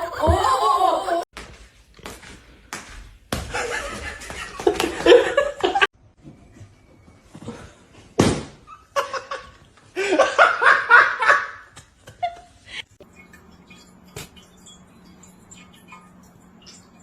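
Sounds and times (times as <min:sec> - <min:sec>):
person laughing: 0:00.0 - 0:01.3.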